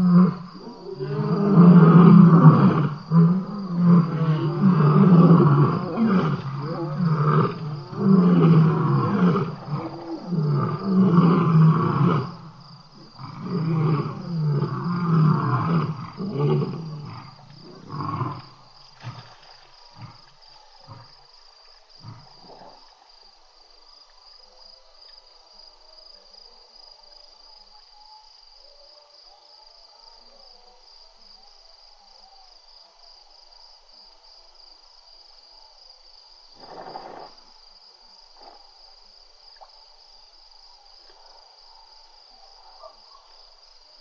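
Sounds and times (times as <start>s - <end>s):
lion roaring: 0.0s - 19.2s
lion grunting: 0.0s - 19.3s
crickets chirring: 0.0s - 44.0s.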